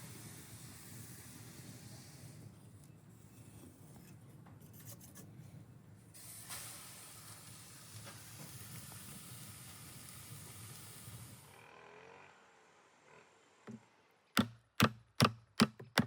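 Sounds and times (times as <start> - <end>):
faint steady hiss: 0.0 - 3.9, 5.3 - 11.6.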